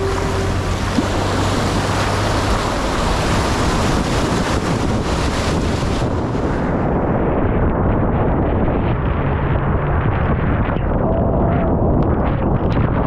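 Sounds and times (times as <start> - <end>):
vehicle splashing through floodwater: 0.0 - 7.0.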